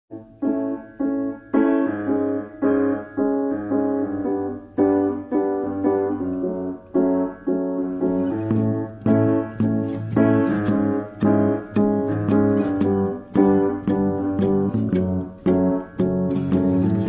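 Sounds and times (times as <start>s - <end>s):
piano playing repeated chords: 0.1s - 17.0s.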